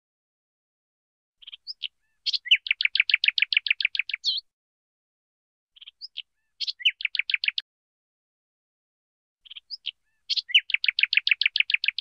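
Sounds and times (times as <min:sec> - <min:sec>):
bird chirping and trilling: 0:01.4 - 0:04.5, 0:05.8 - 0:07.6, 0:09.4 - 0:12.0.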